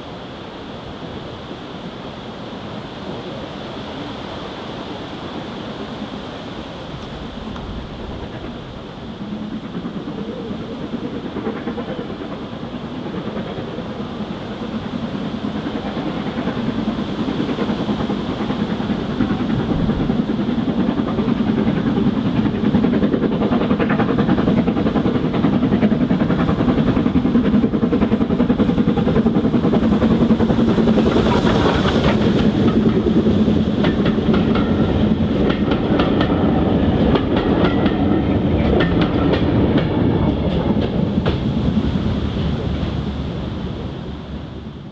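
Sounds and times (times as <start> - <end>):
steam train running past: 0.0 - 44.9
wheels clicking over rail joints: 21.1 - 41.6.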